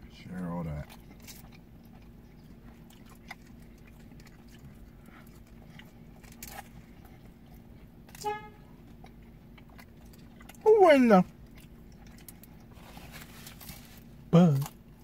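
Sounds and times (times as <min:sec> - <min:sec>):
low steady hum: 0:00.0 - 0:15.0
quiet chewing and mouth clicks: 0:00.7 - 0:08.2, 0:08.8 - 0:15.0
short horn toot: 0:08.2 - 0:08.6.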